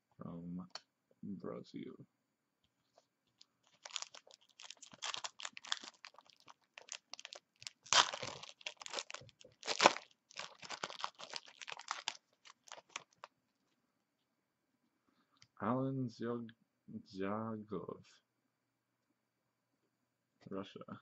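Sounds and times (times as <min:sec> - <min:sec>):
foil wrapper crinkling: 0:03.4 - 0:13.3
loud foil rips: 0:03.7 - 0:13.3.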